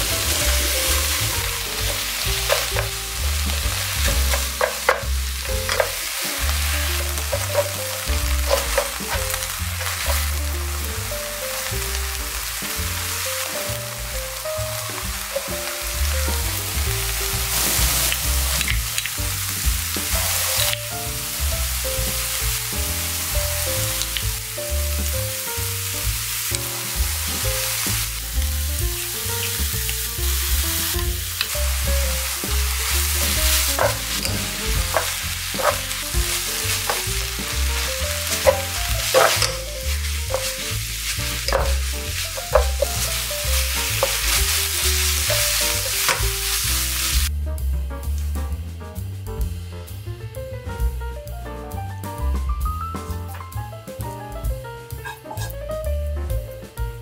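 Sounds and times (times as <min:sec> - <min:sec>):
spatula scraping a pan: 0:00.0 - 0:10.4, 0:32.3 - 0:46.6, 0:55.0 - 0:55.5
spatula tapping: 0:00.0 - 0:10.4, 0:32.2 - 0:46.5
food sizzling in oil: 0:00.0 - 0:47.4, 0:54.8 - 0:55.8.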